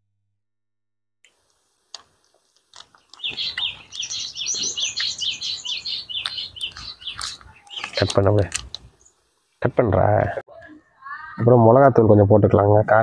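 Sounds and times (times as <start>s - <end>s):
small birds chirping: 2.5s - 11.4s.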